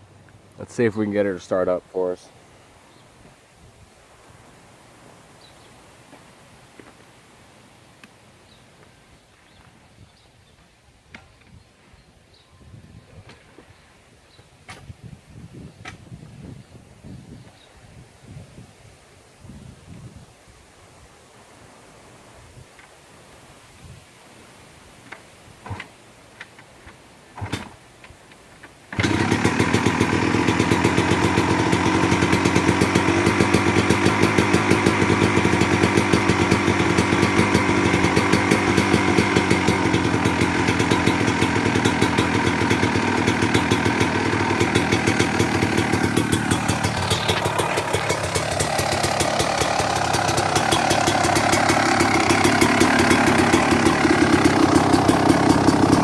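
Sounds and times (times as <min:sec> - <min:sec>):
dirt bike engine running: 0:29.0 - 0:56.0.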